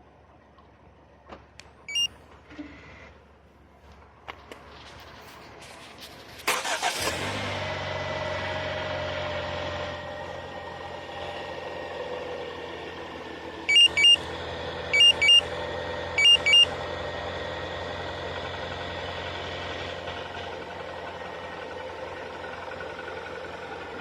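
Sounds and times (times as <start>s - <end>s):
loud electronic beeps: 13.7s - 14.3s, 14.9s - 15.5s, 16.2s - 16.8s.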